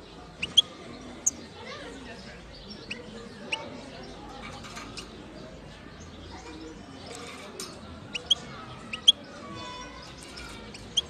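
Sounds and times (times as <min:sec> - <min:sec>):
goldfinch singing: 0:00.4 - 0:01.5.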